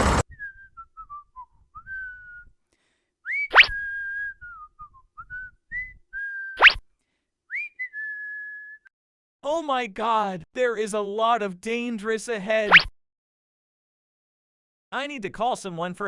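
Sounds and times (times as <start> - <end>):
whistled tune: 0.3 - 2.6, 3.2 - 6.8, 7.5 - 8.9
loud upward whistle swoops: 3.3 - 4.2, 6.4 - 6.8.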